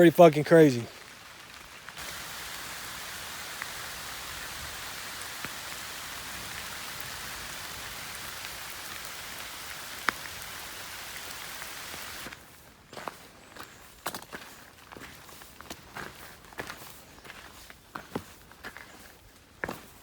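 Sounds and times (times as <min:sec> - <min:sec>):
steady rain falling: 0:00.0 - 0:12.4
sharp raindrop hits: 0:00.6 - 0:12.4.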